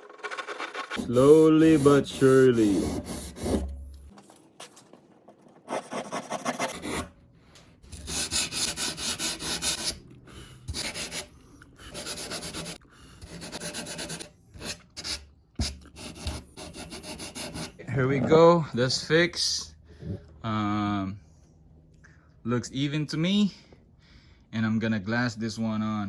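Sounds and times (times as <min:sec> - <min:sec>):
hand tool rasping through foam: 0:00.2 - 0:03.8.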